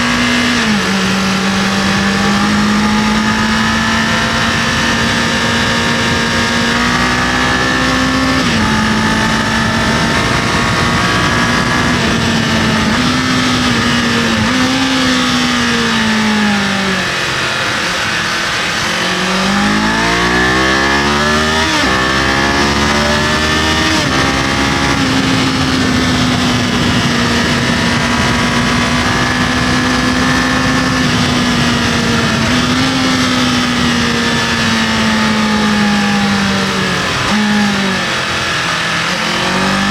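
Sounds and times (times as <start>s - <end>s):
motorcycle engine running: 0.0s - 39.9s
wind noise hissing: 23.7s - 35.0s.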